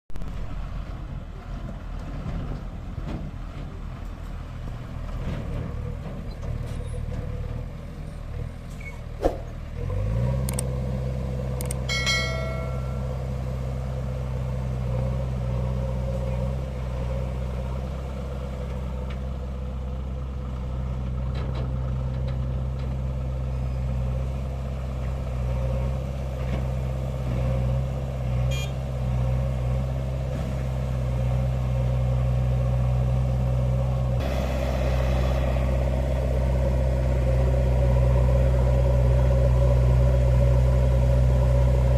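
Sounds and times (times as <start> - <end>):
diesel engine running: 0.1 - 41.9
short high tone: 11.9 - 13.4.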